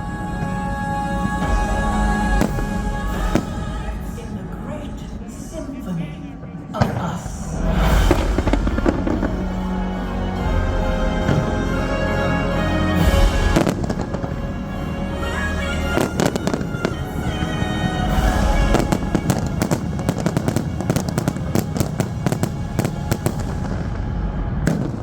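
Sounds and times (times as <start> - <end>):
loud show music: 0.0 - 25.0
fireworks banging and crackling: 1.4 - 4.2, 6.8 - 12.0, 12.7 - 14.9, 15.6 - 25.0.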